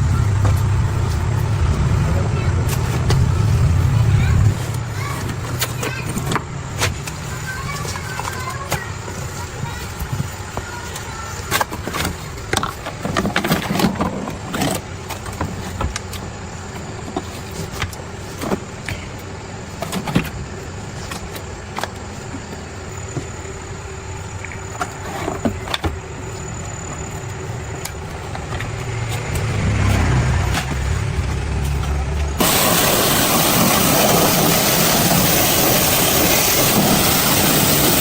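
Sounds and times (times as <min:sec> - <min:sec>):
low rumble: 0:00.0 - 0:04.7, 0:28.6 - 0:34.7
machine humming: 0:20.4 - 0:38.0.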